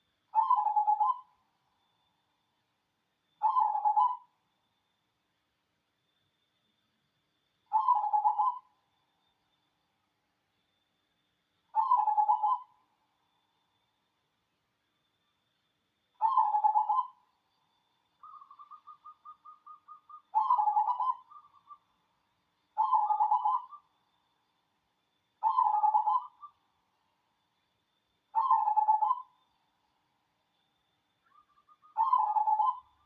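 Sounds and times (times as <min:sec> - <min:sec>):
dove cooing: 0:00.4 - 0:01.3, 0:07.7 - 0:08.7, 0:11.8 - 0:12.7, 0:16.2 - 0:17.2, 0:18.2 - 0:21.8, 0:22.8 - 0:23.8, 0:25.4 - 0:26.5, 0:28.4 - 0:29.3, 0:31.7 - 0:33.0.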